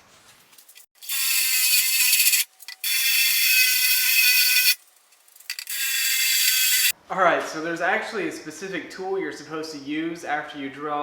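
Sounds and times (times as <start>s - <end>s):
power drill drilling steel: 1.0s - 4.8s, 5.6s - 6.9s.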